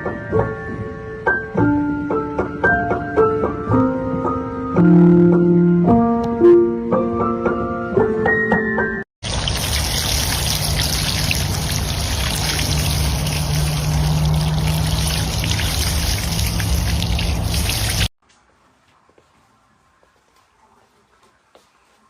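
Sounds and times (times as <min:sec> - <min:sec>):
running water: 0:09.2 - 0:18.1.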